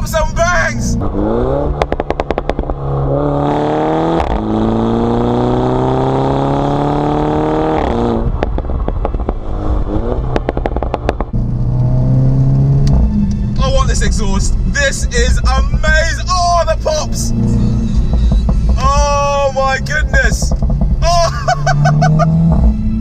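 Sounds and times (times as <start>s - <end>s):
car engine accelerating: 0.0s - 23.0s
exhaust pops and crackles: 1.0s - 4.6s, 7.7s - 11.9s, 15.3s - 22.8s.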